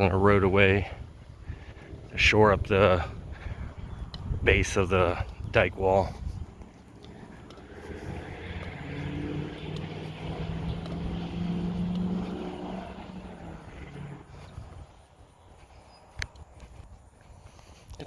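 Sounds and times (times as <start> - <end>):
engine droning past: 6.4 - 15.1.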